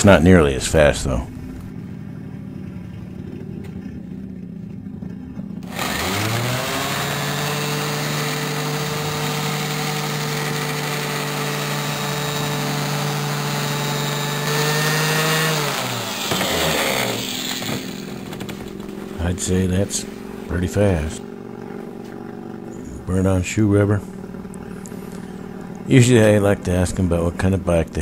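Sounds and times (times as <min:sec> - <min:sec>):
orbital sander running: 0:05.6 - 0:22.8.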